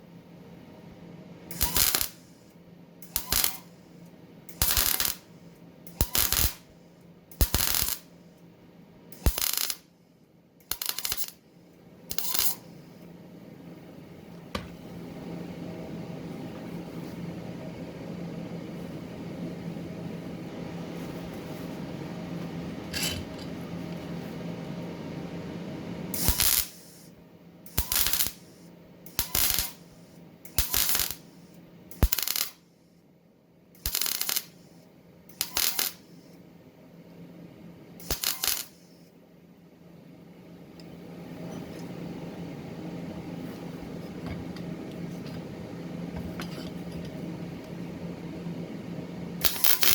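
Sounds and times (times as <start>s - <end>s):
steady low hum: 0.0s - 32.2s, 36.0s - 49.9s
welder arc crackling: 1.5s - 2.4s, 3.0s - 3.8s, 4.6s - 5.3s, 5.9s - 6.7s, 7.4s - 8.1s, 9.2s - 9.9s, 10.7s - 11.4s, 12.1s - 12.7s, 26.2s - 27.0s, 27.7s - 31.4s, 32.0s - 32.6s, 33.8s - 34.6s, 35.4s - 36.0s, 38.0s - 38.8s, 49.4s - 49.9s.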